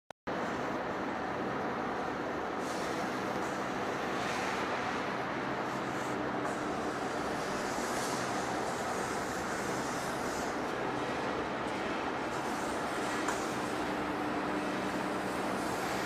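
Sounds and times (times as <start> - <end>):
lathe running with mechanical hum: 0.3 - 16.0.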